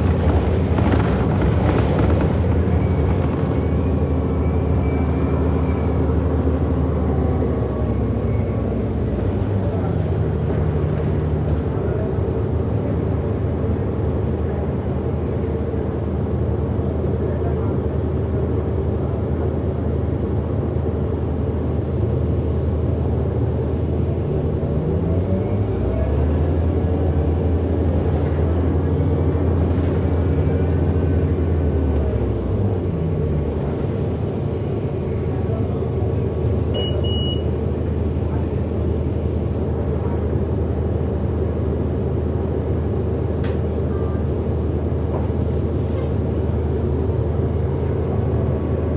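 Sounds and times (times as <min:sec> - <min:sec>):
bus interior drive rumble: 0:00.0 - 0:48.9
short high beeps: 0:36.8 - 0:37.5.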